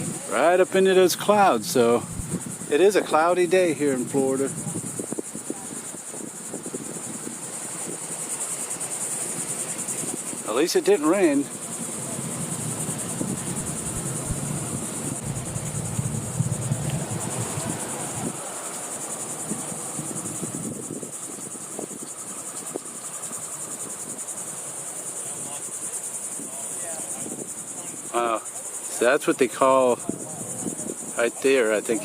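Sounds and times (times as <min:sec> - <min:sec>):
insects chirping: 0:00.0 - 0:32.0
low rumble: 0:15.2 - 0:17.6.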